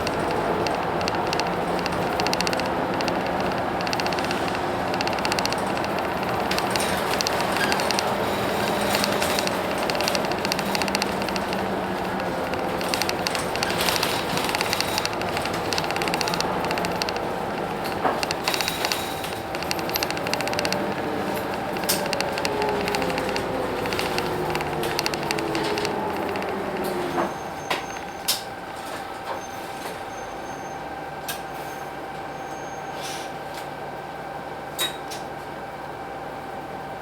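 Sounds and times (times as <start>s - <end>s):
sharp clicks: 0.0s - 28.4s
steady engine hum: 0.0s - 29.3s
bus engine whine: 0.0s - 34.7s.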